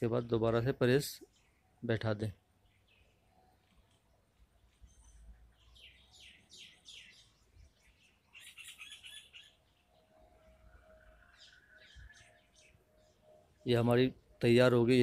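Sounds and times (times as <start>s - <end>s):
quick downward bird chirps: 8.3s - 9.6s
harsh bird chattering: 8.4s - 9.5s.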